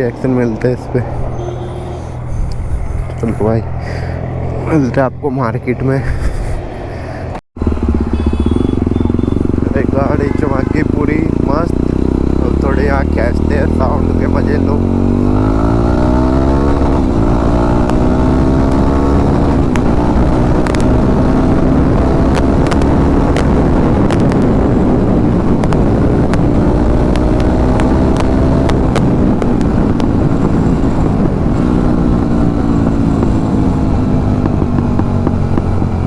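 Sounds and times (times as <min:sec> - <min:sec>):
motorcycle engine revving: 0:07.3 - 0:36.0
exhaust backfire pops: 0:17.6 - 0:18.9, 0:19.5 - 0:33.4, 0:34.2 - 0:36.0.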